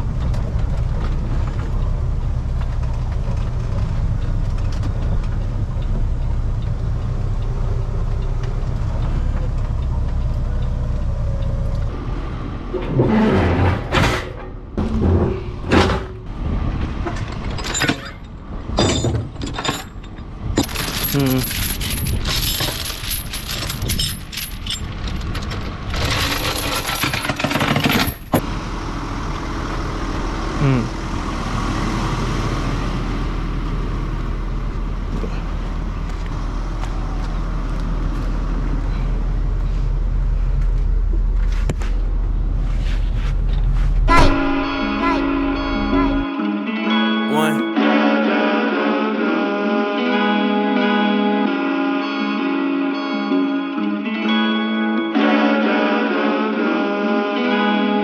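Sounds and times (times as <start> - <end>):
diesel engine running: 0.0 - 13.0, 28.0 - 46.2
voice-like sounds: 47.3 - 47.7.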